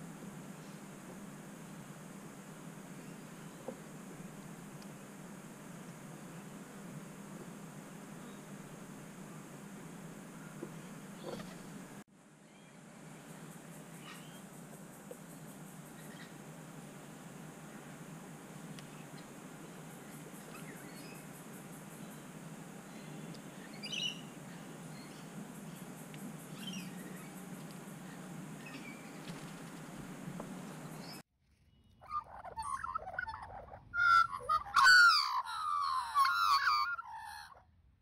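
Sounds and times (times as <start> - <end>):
faint outdoor background: 0.0 - 38.0
loud wavering bird calls: 22.9 - 25.4, 26.5 - 29.4, 32.0 - 37.6.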